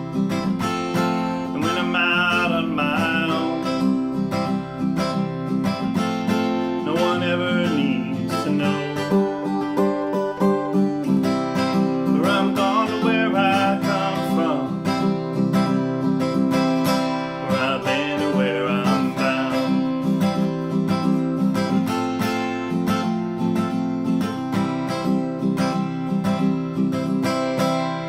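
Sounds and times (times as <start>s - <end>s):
acoustic guitar strumming chords: 0.0s - 28.0s.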